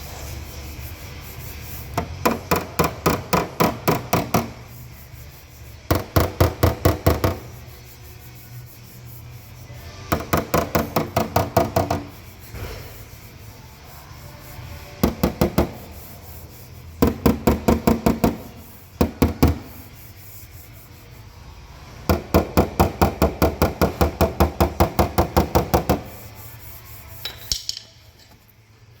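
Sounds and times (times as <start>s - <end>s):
hammer tapping on sheet metal: 2.0s - 4.6s, 5.9s - 7.5s, 10.1s - 12.2s, 15.0s - 15.9s, 17.0s - 19.8s, 22.1s - 26.2s.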